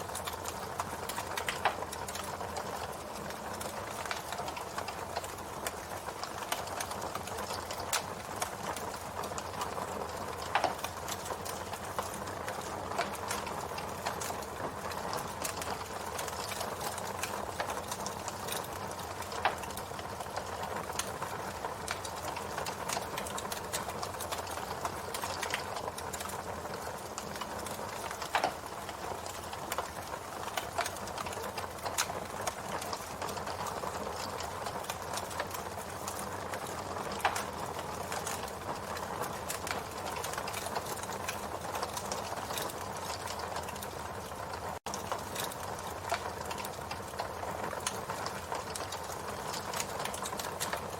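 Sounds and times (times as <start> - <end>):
campfire wood crackling: 0.0 - 50.9
louder fire pops: 25.0 - 43.9.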